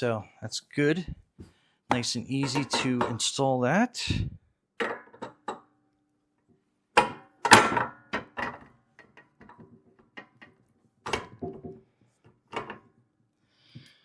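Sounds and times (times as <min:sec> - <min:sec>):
metal parts knocking and clunking: 0:01.9 - 0:03.2.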